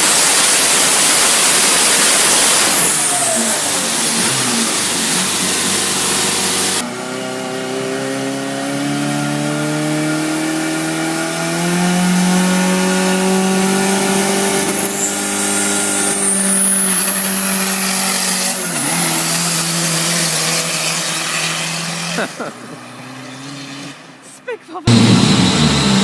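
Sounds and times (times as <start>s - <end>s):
large turbocharged engine revving: 0.0s - 24.2s, 24.9s - 26.0s
thin high whistle: 14.9s - 18.2s.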